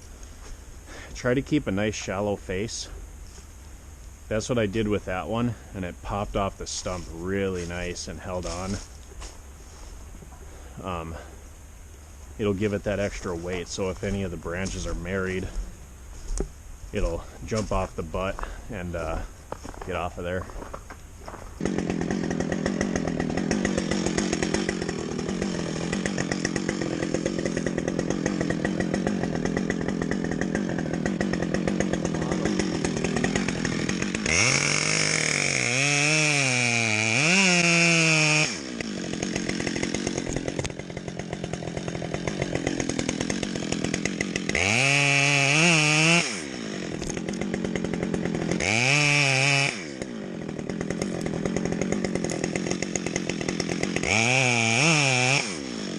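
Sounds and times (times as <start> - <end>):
chainsaw running and revving: 4.4 - 11.4, 12.4 - 55.9.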